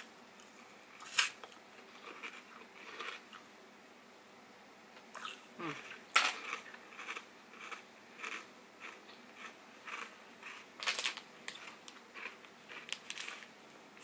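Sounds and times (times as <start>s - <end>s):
ice being chewed and crunched: 1.9s - 3.2s, 5.2s - 13.5s.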